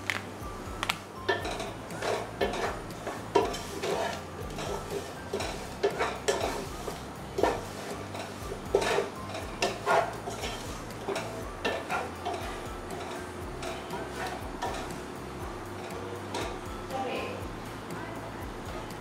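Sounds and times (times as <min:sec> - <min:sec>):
wooden spatula scraping a pot: 0:01.4 - 0:14.9.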